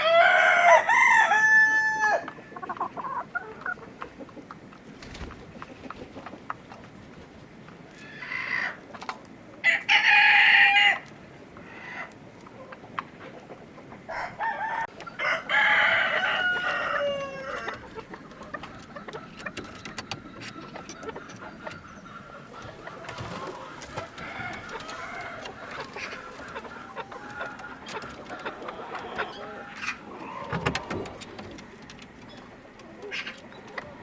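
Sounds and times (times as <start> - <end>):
rooster crowing: 0.0 - 2.3, 9.6 - 11.0, 14.1 - 17.8, 24.1 - 25.7
chickens clucking: 0.0 - 34.0.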